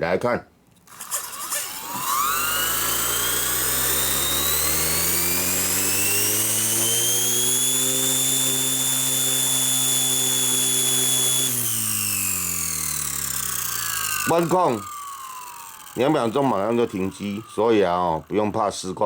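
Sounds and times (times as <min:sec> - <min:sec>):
rc helicopter motor whine: 0:00.8 - 0:18.8.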